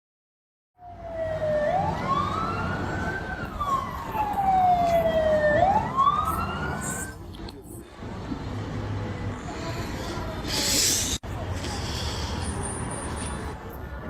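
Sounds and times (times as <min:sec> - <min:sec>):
emergency vehicle siren wailing: 0:00.8 - 0:07.3.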